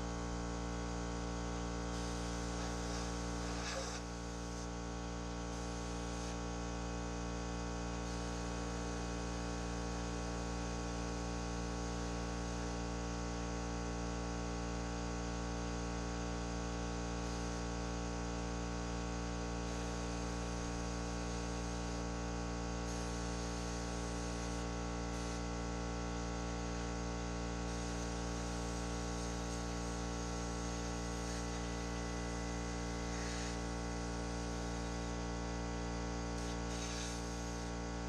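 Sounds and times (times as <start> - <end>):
machine humming with hiss: 1.2 - 6.5, 22.7 - 38.0.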